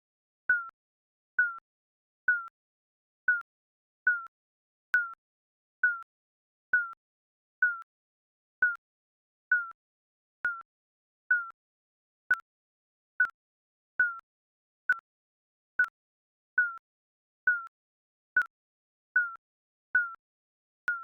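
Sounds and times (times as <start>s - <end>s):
timer digital beeps: 0.5s - 0.8s, 3.3s - 3.5s, 5.0s - 5.2s, 6.8s - 7.0s, 10.4s - 10.7s, 12.3s - 12.5s, 14.0s - 14.2s, 14.9s - 15.1s, 16.6s - 16.8s, 19.2s - 19.4s, 20.0s - 20.2s.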